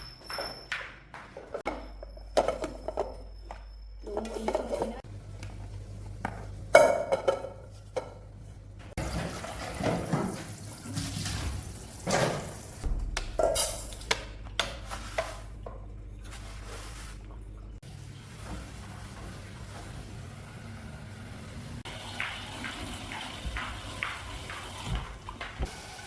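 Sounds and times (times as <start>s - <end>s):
dishes clinking: 1.5s - 5.0s, 6.3s - 8.3s.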